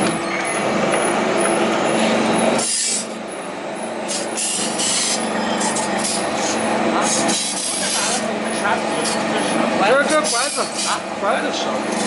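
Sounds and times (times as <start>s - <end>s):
forming machine humming: 0.0s - 12.0s
metal rubbing and scraping: 4.0s - 11.0s.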